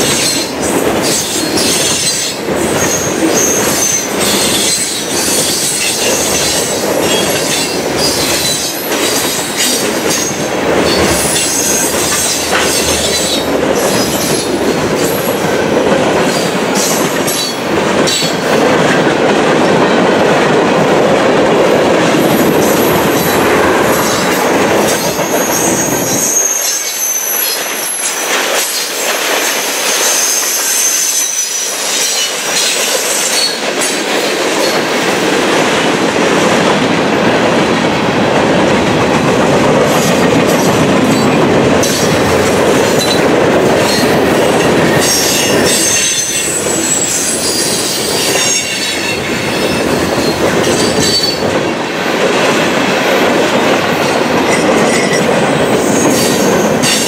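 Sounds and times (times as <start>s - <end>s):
freight train wheels clattering on rail: 0.0s - 57.0s
high-pitched wheel squeal: 24.0s - 28.1s.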